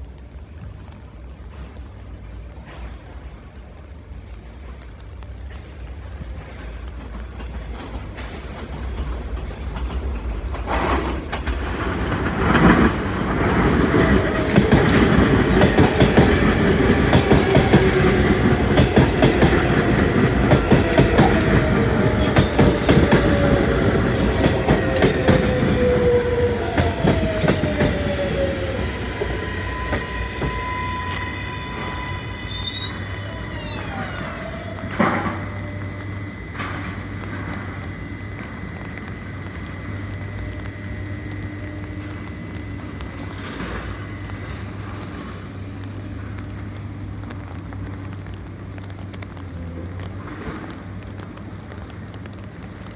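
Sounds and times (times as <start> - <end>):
train wheels clattering over rail joints: 6.4 - 47.8
train wheels squealing: 11.8 - 45.8.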